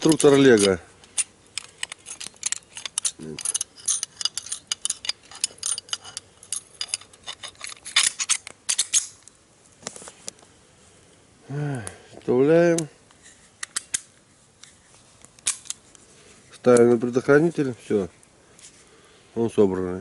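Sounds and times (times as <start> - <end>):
small metallic clicks and scrapes: 0.0 - 10.4, 12.7 - 17.7.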